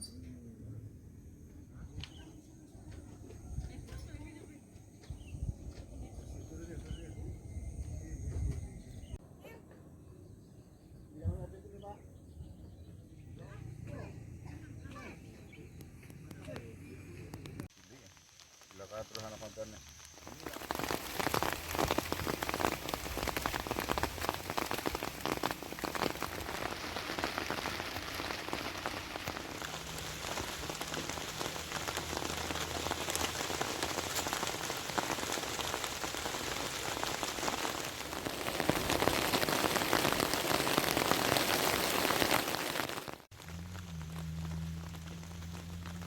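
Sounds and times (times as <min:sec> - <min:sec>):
rain falling: 0:17.6 - 0:46.0.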